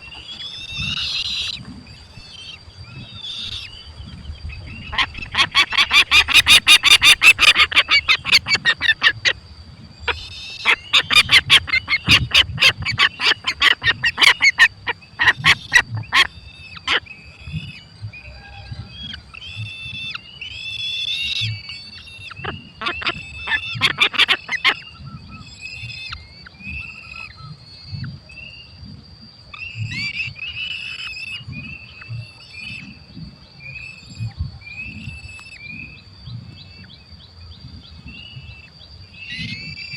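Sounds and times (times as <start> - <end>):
falcon shrill repeated calls: 4.9 - 9.4, 10.1 - 17.0, 22.2 - 24.9.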